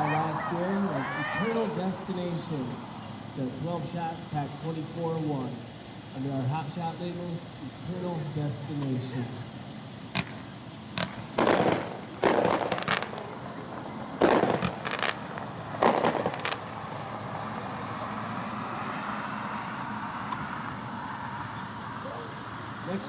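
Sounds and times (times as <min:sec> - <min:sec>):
steady background hiss: 0:00.0 - 0:23.0
distant fireworks bangs and pops: 0:10.0 - 0:17.0.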